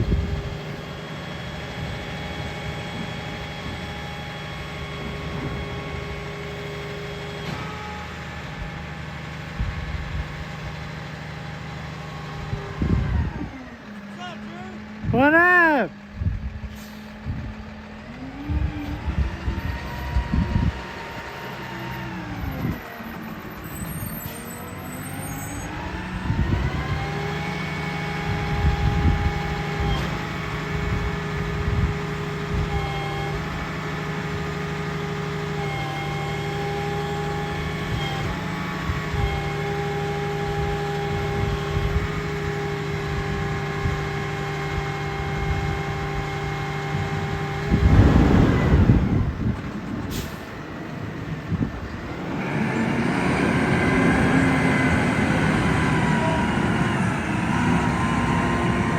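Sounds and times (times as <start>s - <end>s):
garbage truck engine revving: 14.7s - 58.9s.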